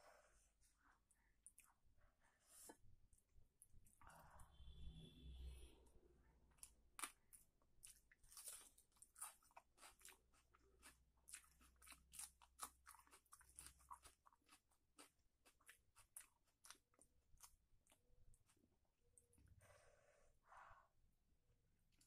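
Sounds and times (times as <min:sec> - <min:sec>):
mouth chewing food: 0:06.5 - 0:19.3.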